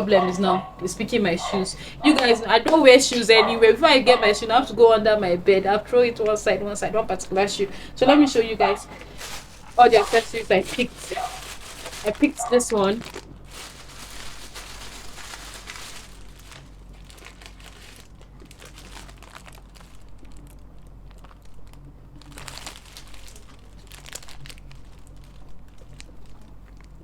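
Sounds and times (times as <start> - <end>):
crinkling and rustling: 0.0 - 27.0.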